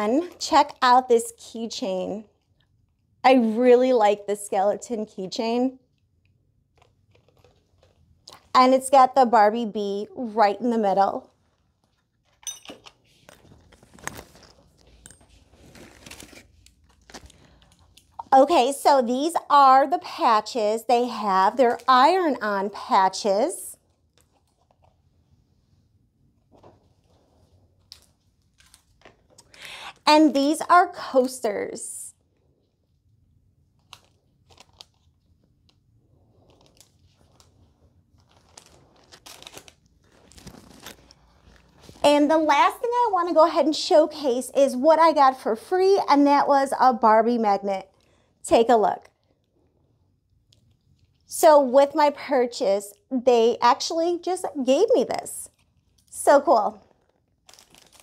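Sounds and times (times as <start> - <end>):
packaging rustling and crinkling: 6.7 - 8.5, 11.4 - 18.1, 33.8 - 42.0, 56.8 - 58.0.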